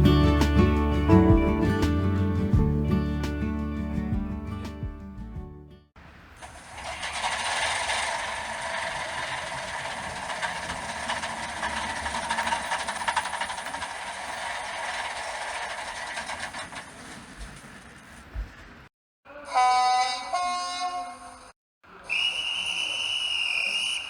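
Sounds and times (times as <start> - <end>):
model train running: 6.4 - 18.3.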